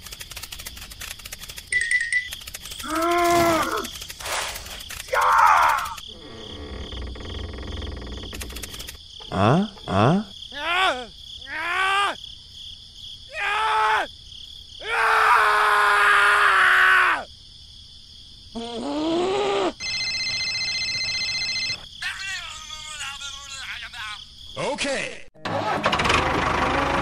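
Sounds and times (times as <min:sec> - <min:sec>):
cartoon arching cries: 0:02.8 - 0:03.9, 0:05.1 - 0:06.0, 0:10.2 - 0:12.2
cartoon groan: 0:02.8 - 0:03.9, 0:09.3 - 0:12.2, 0:18.6 - 0:19.8.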